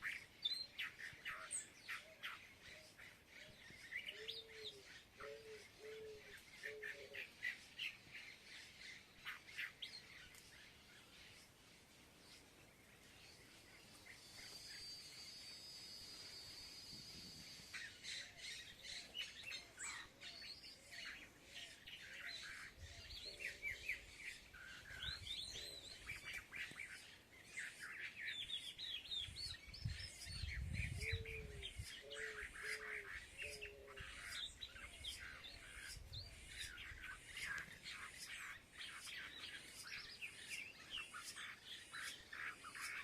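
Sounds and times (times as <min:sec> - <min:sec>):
small birds chirping: 0:00.0 - 0:43.0
lower bird call: 0:13.7 - 0:26.9.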